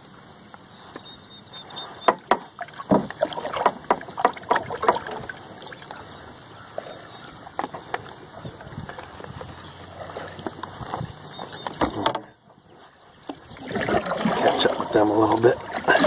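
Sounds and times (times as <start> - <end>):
steady low hiss: 0.0 - 4.2
knocks and clatter on boat: 2.0 - 5.9, 7.5 - 12.6.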